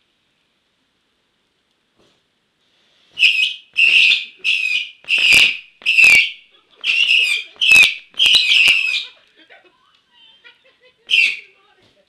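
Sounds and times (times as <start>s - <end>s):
firework cracks: 3.2s - 9.1s
whistling fireworks: 3.2s - 9.2s, 11.1s - 11.6s.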